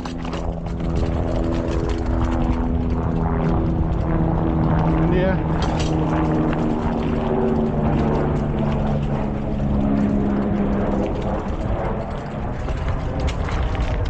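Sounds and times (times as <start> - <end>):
vehicle engine droning: 0.0 - 14.0
wind rumble on microphone: 0.0 - 14.0.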